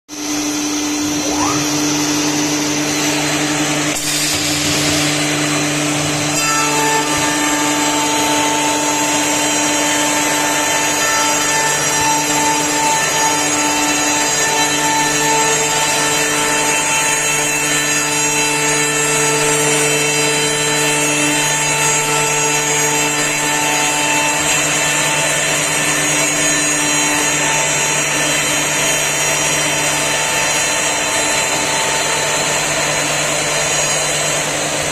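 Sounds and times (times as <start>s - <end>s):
machine whining tones: 0.1s - 14.8s
milling machine cutting wood: 0.1s - 34.9s.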